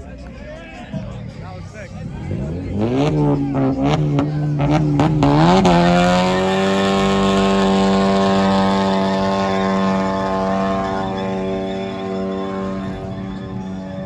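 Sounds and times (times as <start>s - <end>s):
car engine revving with pops: 2.3s - 14.0s.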